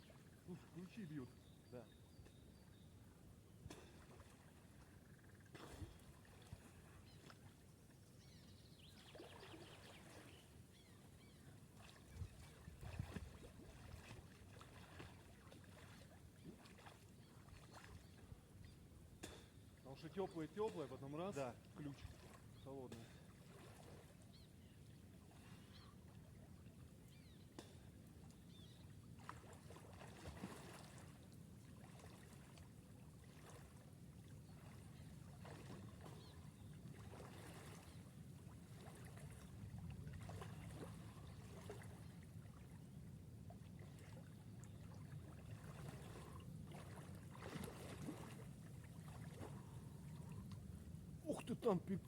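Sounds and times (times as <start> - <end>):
water splashing from swimming: 11.8 - 18.1, 29.2 - 33.8, 34.6 - 42.9, 43.5 - 50.4.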